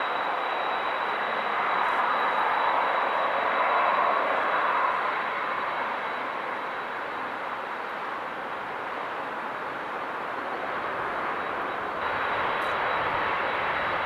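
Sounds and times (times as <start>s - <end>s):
high engine whine: 0.0s - 14.0s
jet engine rush: 9.7s - 14.0s.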